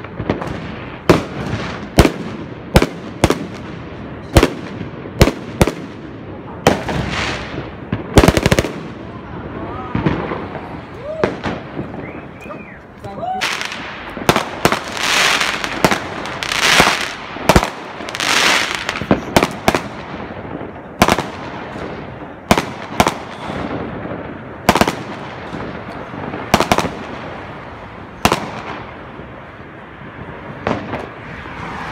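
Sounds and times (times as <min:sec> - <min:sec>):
fireworks bangs: 0:00.0 - 0:31.9
fireworks hissing: 0:09.2 - 0:31.9.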